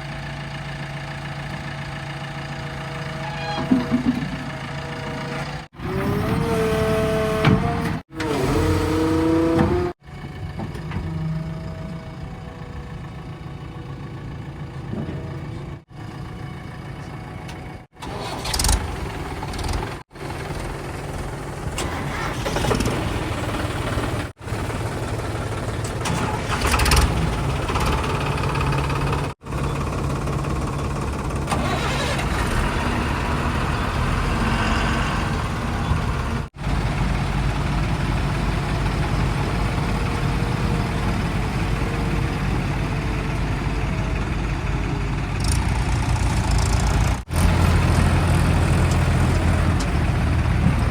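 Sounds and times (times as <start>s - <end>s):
diesel engines idling: 0.0s - 50.9s.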